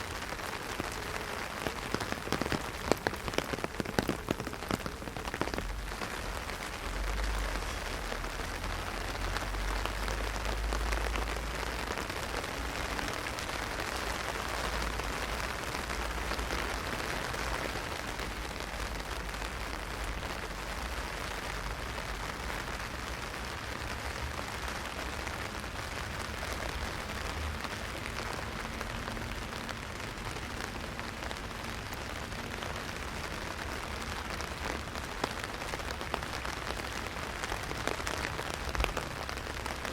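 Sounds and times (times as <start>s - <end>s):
heavy rain on an umbrella: 0.0s - 39.9s.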